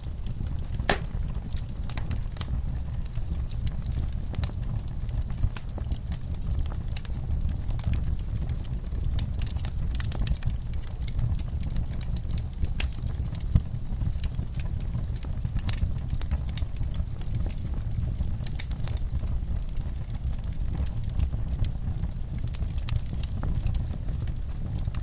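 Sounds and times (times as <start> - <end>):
fire crackling and snapping: 0.0 - 25.0
fire flames rumbling: 0.0 - 25.0
loud fire pop: 0.8 - 1.3.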